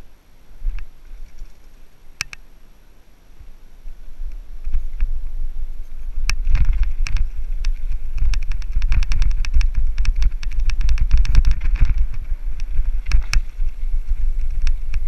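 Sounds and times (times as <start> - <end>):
bike rattling clicks: 0.6 - 2.5, 3.8 - 15.0
wind buffeting microphone: 3.4 - 15.0.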